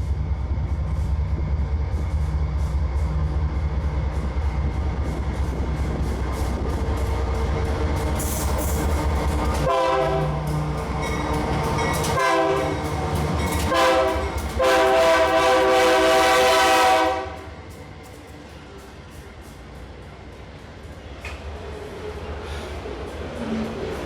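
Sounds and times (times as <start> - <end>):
low train rumble: 0.0 - 24.0
locomotive air horn blasts: 9.6 - 10.5, 12.2 - 12.8, 13.7 - 17.5.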